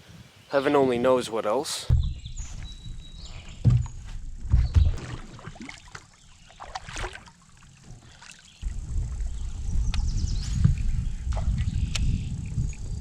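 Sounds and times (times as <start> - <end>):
low rumble on microphone: 1.9 - 5.6, 7.8 - 13.0
paddle strokes in water: 2.0 - 11.9.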